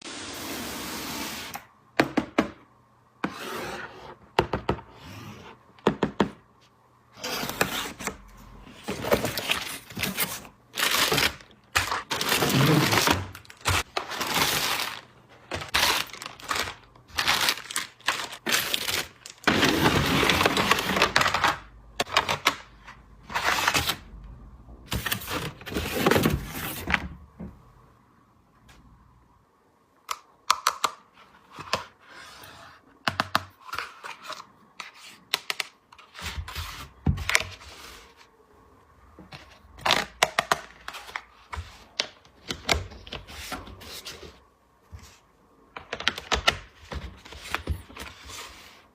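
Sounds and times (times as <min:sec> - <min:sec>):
packaging rustling: 0:08.7 - 0:22.5.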